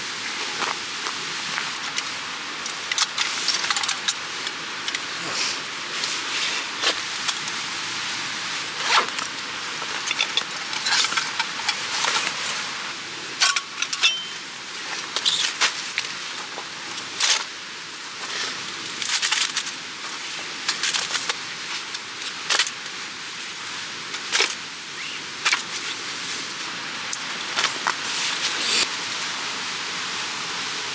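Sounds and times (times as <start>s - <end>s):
camping gear clattering: 13.4s - 14.4s.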